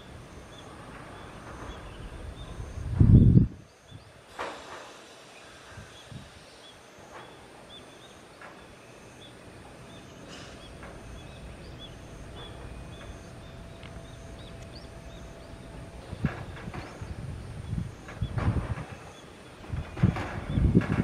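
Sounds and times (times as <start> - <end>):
small bird chirping: 5.8 - 20.7
low rumble: 10.6 - 19.0.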